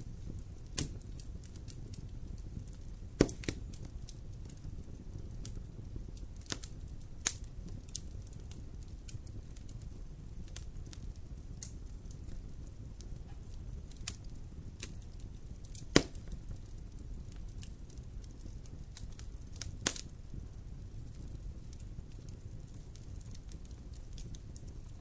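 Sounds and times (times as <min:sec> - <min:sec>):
fire crackling with small pops: 0:00.0 - 0:25.0
low fire rumble: 0:00.0 - 0:25.0
sharp wood snaps: 0:03.2 - 0:03.6, 0:15.7 - 0:16.2.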